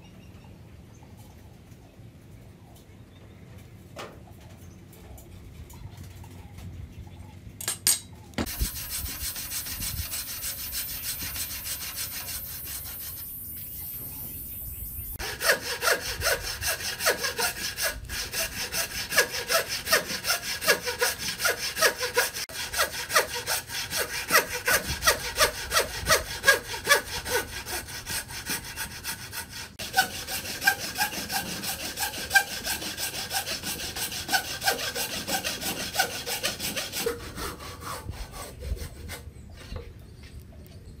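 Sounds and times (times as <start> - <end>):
hand saw cutting wood: 8.4 - 13.7, 15.2 - 39.8.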